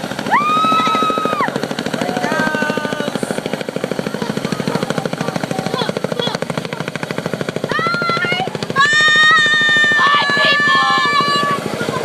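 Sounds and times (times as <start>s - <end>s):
helicopter engine noise: 0.0s - 12.0s
helicopter rotor blades beating: 0.0s - 12.0s
people shouting: 0.2s - 3.2s, 7.7s - 12.0s.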